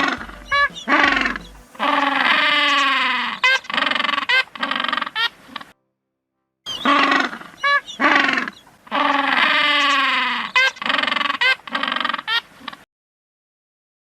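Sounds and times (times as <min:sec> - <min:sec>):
animal crying: 0:06.8 - 0:12.4.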